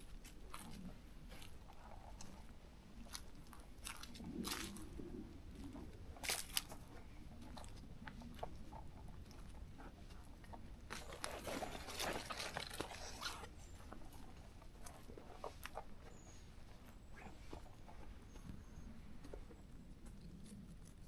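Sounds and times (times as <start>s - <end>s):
footsteps crunching on forest trail: 3.0s - 4.8s
twigs snapping underfoot: 6.2s - 6.7s.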